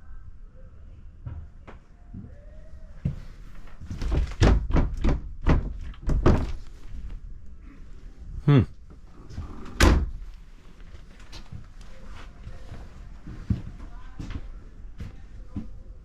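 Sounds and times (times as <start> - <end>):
hollow thunks and knocks: 3.9 - 6.6.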